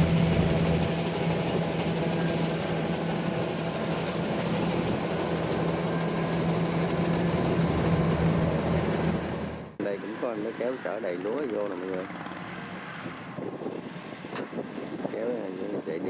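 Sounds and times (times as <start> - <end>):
diesel farm machinery engine: 0.0 - 10.3.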